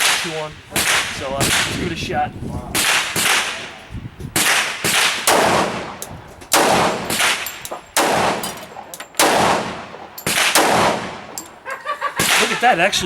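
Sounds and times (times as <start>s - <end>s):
pistol shots echoing: 4.4s - 12.6s.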